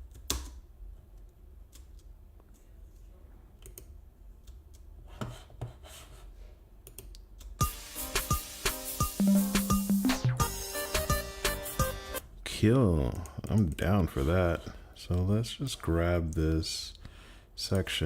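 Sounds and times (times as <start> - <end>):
keyboard and mouse clicks: 0.0 - 3.0, 3.6 - 4.9, 6.8 - 7.6
reggaeton beat with synth notes: 7.6 - 12.2.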